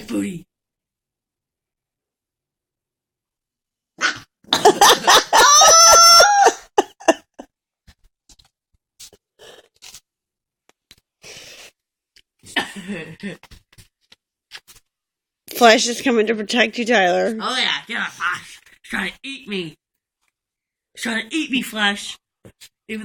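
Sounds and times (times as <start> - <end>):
person's high-pitched squeal: 5.3 - 6.8.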